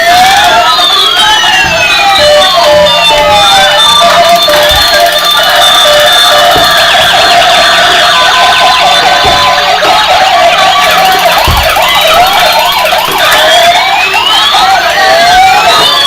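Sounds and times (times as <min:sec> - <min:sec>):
electronic toy sirens wailing: 0:00.0 - 0:16.0.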